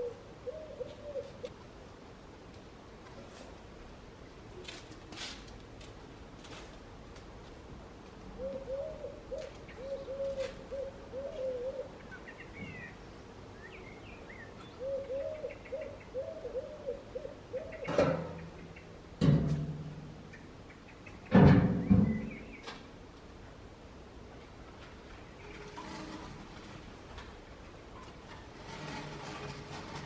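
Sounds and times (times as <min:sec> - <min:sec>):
bird cooing hoots: 0:00.0 - 0:01.5, 0:08.4 - 0:12.4, 0:14.6 - 0:18.1
loud knocks: 0:21.3 - 0:22.4.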